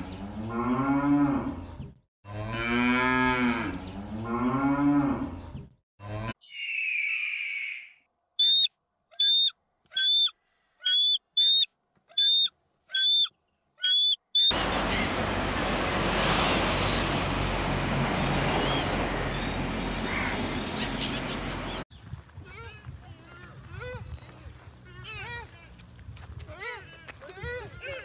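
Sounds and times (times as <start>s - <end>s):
bird's short high calls: 6.5s - 14.6s
ocean surf: 14.5s - 21.8s
faint seabird calls: 18.6s - 21.8s.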